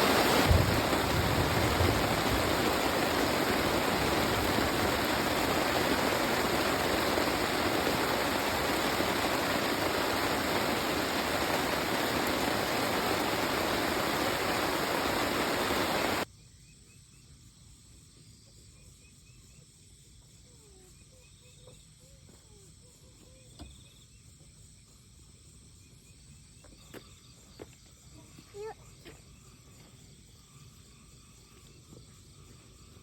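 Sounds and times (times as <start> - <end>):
rushing flowing water: 0.0 - 16.2
insects chirping: 0.0 - 33.0.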